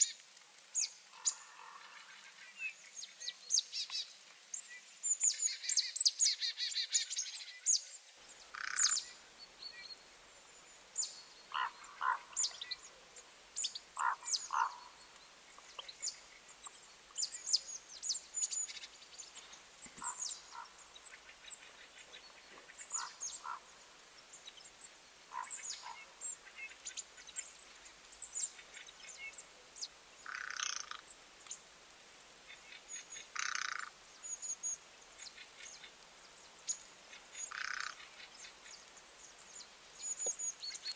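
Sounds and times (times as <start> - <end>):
birds chirping: 2.0 - 31.7
harsh bird calls: 13.6 - 15.1, 20.0 - 23.8, 25.3 - 26.8.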